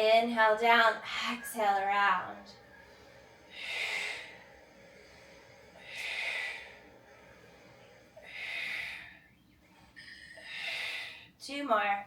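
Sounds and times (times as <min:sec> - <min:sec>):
woman breathing close to microphone: 0:02.2 - 0:11.4.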